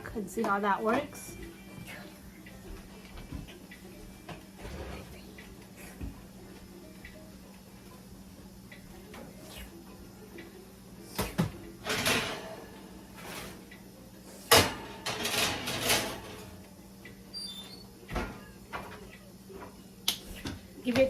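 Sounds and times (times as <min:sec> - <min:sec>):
metal racks scraping and rattling: 0:04.5 - 0:05.5, 0:11.8 - 0:13.8, 0:14.4 - 0:16.6.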